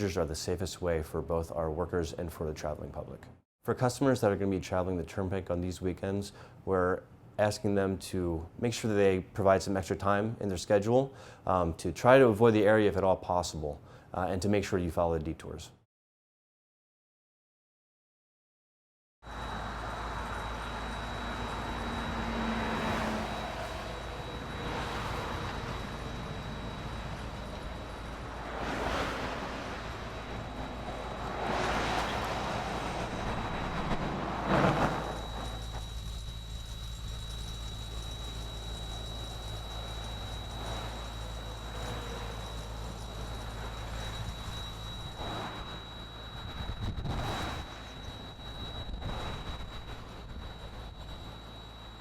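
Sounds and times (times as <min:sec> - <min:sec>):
vehicles passing on highway: 0:19.3 - 0:46.1
low traffic rumble: 0:19.3 - 0:51.6.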